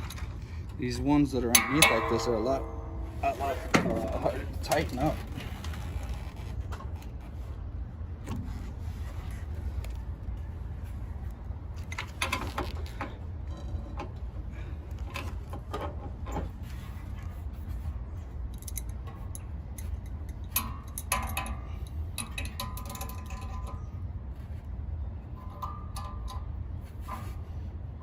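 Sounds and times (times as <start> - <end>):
steady low rumble: 0.0 - 28.0
hand tool metallic clicks and scrapes: 18.5 - 23.9.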